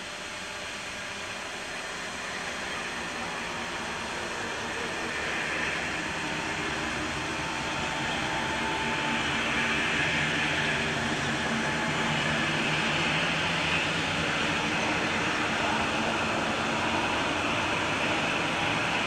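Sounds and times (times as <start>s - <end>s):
train rolling noise: 0.0s - 19.0s.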